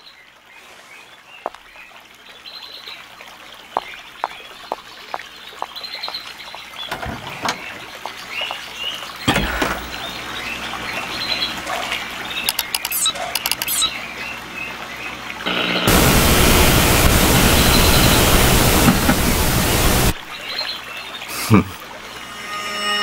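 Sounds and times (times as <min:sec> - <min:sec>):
birds chirping: 0:03.8 - 0:21.6
sharp clicks: 0:12.5 - 0:13.9.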